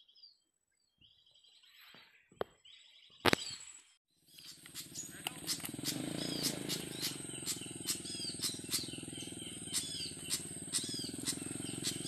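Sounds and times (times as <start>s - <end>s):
sharp clicks: 4.3s - 8.9s
high descending bird chirps: 4.4s - 12.0s.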